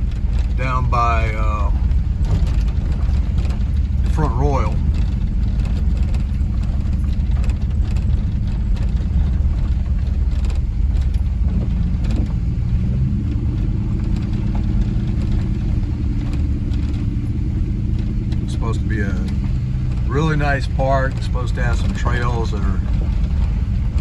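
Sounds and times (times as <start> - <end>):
pickup truck engine: 0.0 - 24.0
road rumble: 0.0 - 24.0.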